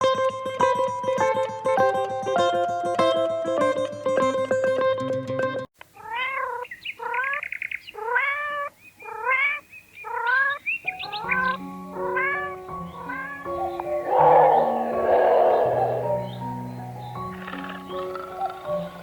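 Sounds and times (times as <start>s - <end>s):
cat meowing: 6.0s - 6.6s, 12.0s - 16.4s
background music: 11.3s - 19.0s.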